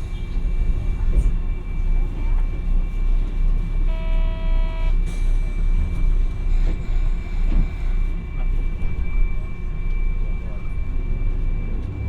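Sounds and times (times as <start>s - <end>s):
tram wheels rumbling on rails: 0.0s - 3.8s, 5.3s - 12.0s.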